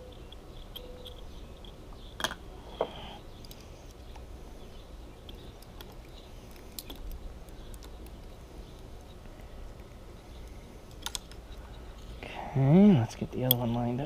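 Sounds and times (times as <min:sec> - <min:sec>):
low steady hum: 0:00.0 - 0:14.0
sharp clicks: 0:05.2 - 0:11.7.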